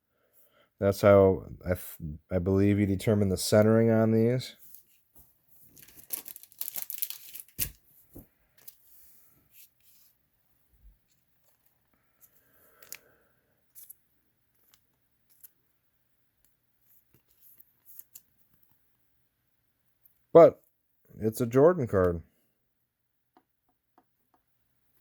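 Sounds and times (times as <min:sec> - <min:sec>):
trading cards and packaging rustling: 0:04.5 - 0:10.2, 0:10.9 - 0:15.8, 0:16.4 - 0:18.8.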